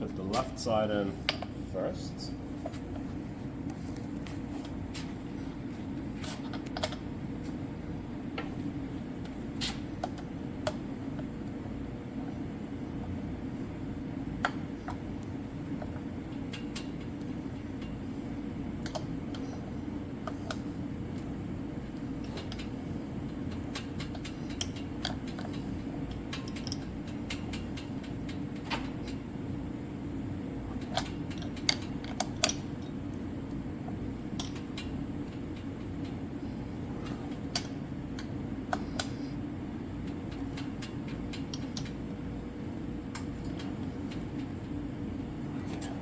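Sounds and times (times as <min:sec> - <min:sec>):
steady low hum: 0:00.0 - 0:46.0
metal bike parts clicking: 0:23.6 - 0:29.2.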